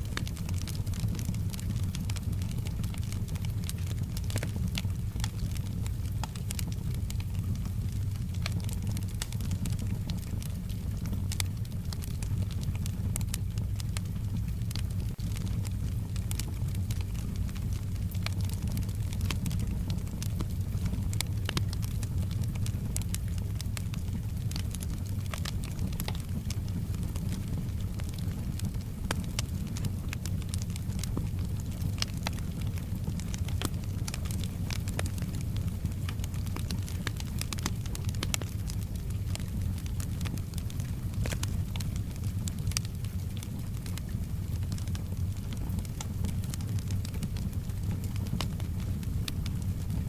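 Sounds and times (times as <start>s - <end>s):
soft rain hiss: 0.0s - 50.0s
wood fire crackling: 0.0s - 50.0s.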